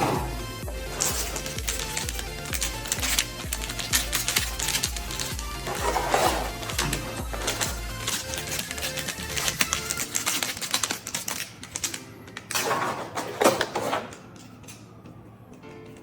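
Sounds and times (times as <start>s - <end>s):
background music: 0.0s - 16.0s
plastic toy parts clicking: 0.8s - 12.8s.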